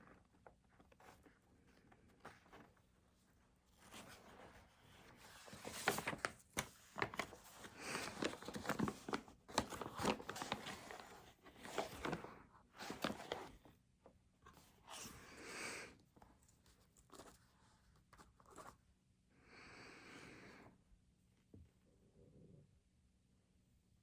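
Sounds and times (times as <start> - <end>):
paper rustling: 3.7 - 13.7, 16.2 - 18.8.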